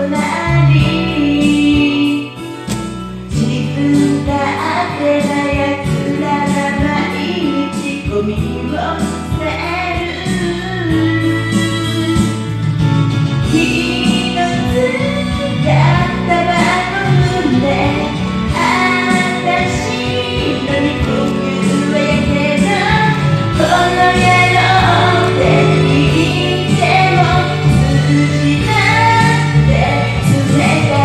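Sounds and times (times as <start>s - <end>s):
instrumental backing track: 0.0s - 31.0s
person singing: 13.4s - 31.0s.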